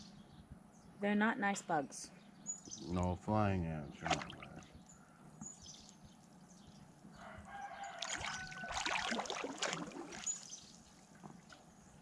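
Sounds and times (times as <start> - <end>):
small birds chirping: 0.0 - 8.6, 10.1 - 12.0
rooster crowing: 7.1 - 9.2.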